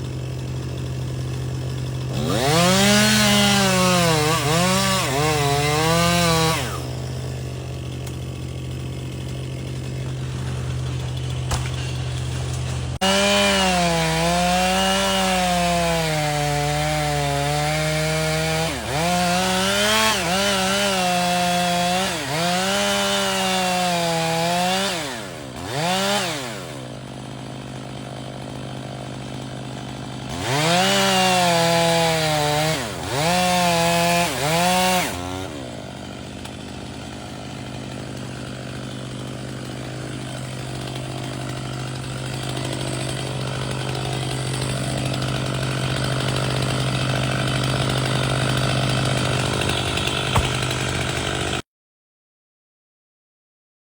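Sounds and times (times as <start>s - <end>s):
chainsaw idling: 0.0s - 51.6s
chainsaw cutting wood: 0.0s - 51.7s.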